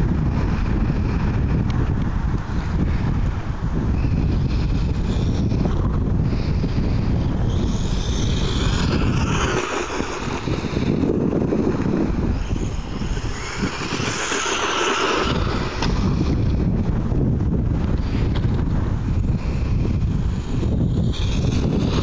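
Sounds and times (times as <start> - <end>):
electric motor whine: 0.0 - 22.0
wind buffeting microphone: 0.0 - 22.0.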